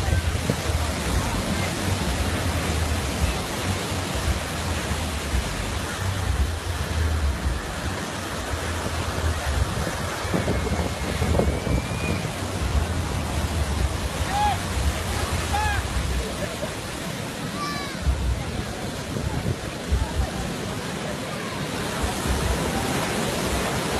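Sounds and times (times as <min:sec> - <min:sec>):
wind buffeting microphone: 0:00.0 - 0:16.4
surf on beach: 0:00.0 - 0:23.9.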